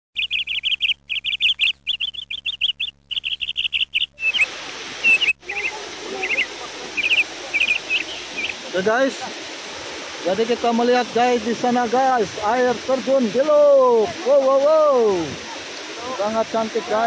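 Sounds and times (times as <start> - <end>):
birds chirping: 0.2 - 12.9
steady hiss: 4.2 - 17.0.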